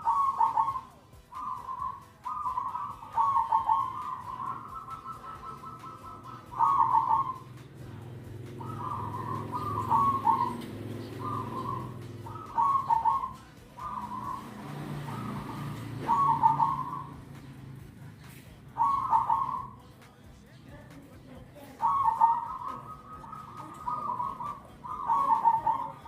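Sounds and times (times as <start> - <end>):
dove cooing: 0.0 - 20.0, 21.6 - 26.0.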